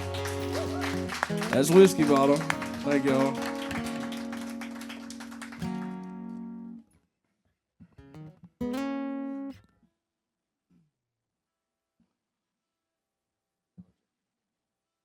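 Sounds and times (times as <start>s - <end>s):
acoustic guitar plucking: 0.0s - 6.8s, 7.8s - 9.6s.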